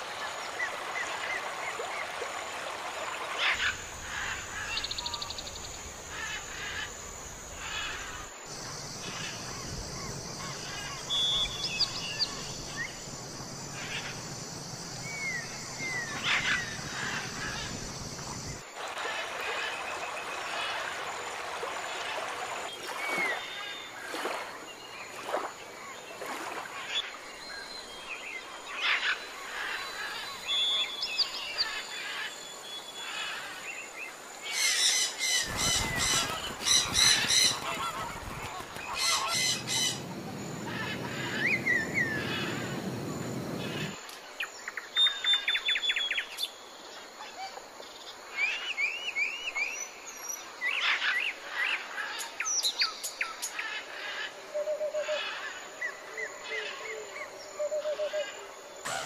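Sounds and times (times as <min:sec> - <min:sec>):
wild birds calling: 0:03.4 - 0:19.3, 0:34.4 - 0:44.0, 0:53.6 - 0:59.0
loud repeated bird calls: 0:34.6 - 0:44.0
rushing noise: 0:35.5 - 0:44.0.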